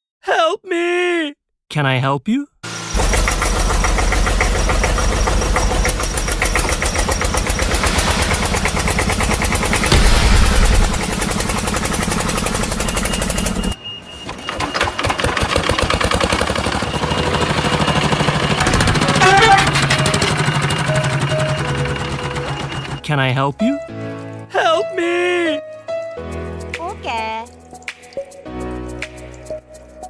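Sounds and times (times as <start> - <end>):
toy engine running: 2.9 - 7.6.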